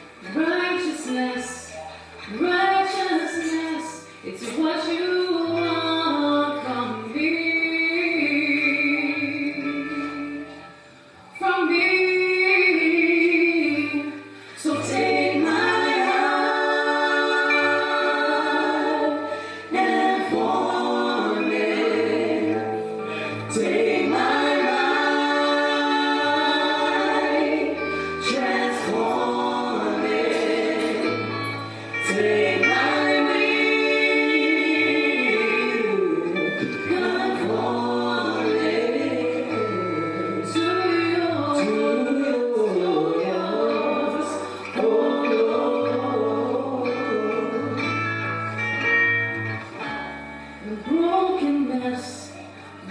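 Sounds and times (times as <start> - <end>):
gospel choir singing: 11.5 - 49.0.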